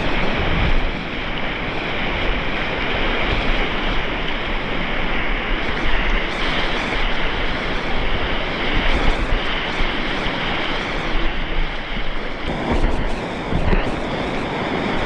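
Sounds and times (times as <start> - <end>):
wind buffeting microphone: 0.0 - 15.0
river water rushing: 9.5 - 15.0.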